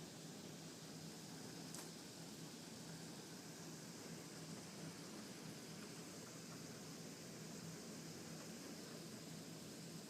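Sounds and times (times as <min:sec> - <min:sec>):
hiss of falling precipitation: 0:00.0 - 0:10.0.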